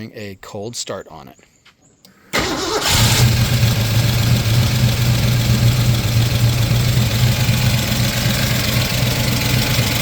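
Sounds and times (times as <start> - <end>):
car engine idling: 2.4 - 10.0.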